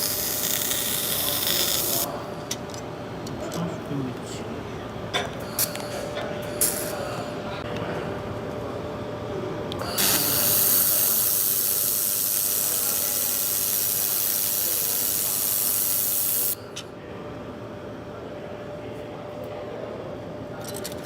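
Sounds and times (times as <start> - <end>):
laser welding hiss: 0.0 - 2.1, 9.8 - 16.6
steady machine hum: 0.0 - 5.1.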